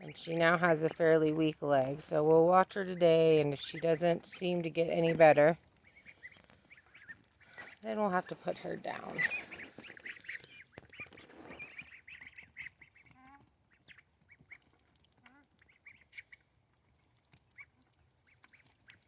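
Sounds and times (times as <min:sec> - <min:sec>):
poultry calling: 0:05.8 - 0:14.6.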